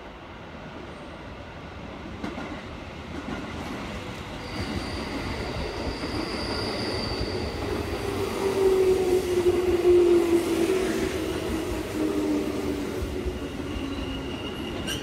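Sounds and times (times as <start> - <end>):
high thin squeal: 4.4 - 7.6.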